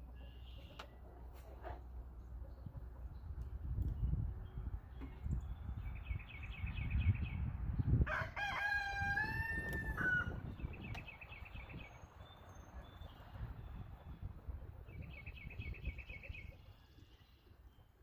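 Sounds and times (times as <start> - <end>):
small birds chirping: 0.0 - 1.0, 2.0 - 8.0, 10.4 - 18.0
wind rumble on microphone: 1.7 - 18.0
rooster crowing: 8.1 - 10.4.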